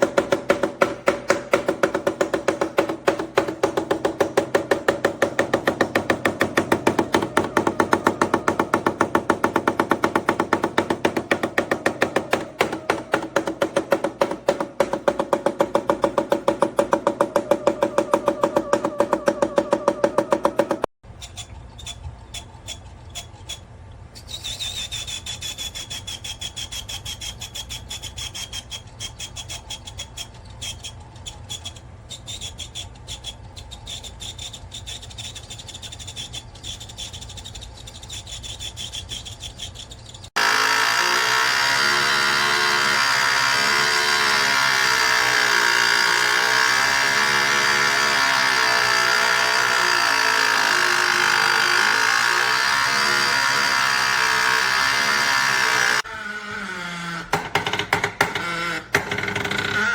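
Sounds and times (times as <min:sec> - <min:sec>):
harsh machine grinding: 0:00.0 - 0:20.9, 0:40.4 - 0:56.1
ice maker ticking and squealing: 0:17.2 - 0:56.0.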